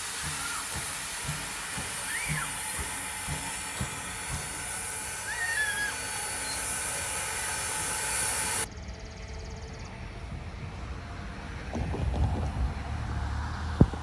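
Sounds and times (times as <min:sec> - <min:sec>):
steam locomotive hissing steam: 0:00.0 - 0:08.7.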